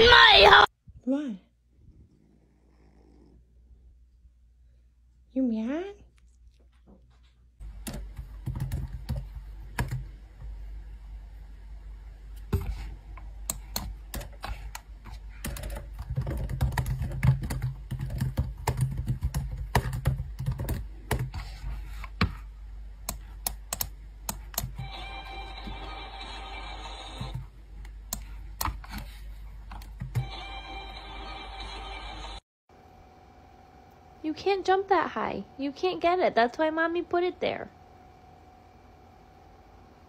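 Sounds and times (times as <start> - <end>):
low steady hum: 0.7 - 31.1
sharp clicks and taps: 23.0 - 24.8.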